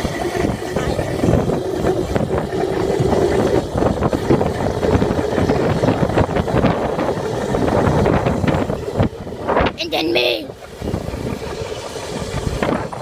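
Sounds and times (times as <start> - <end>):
dirt bike engine running: 0.0 - 9.8
wind buffeting microphone: 0.0 - 13.0.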